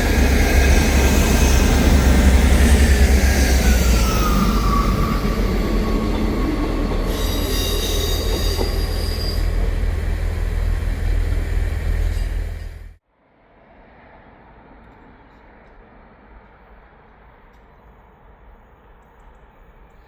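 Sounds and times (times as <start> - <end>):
high wheel squeal: 0.0 - 12.9
train engine rumble: 0.0 - 13.0
train wheel noise: 0.0 - 13.0.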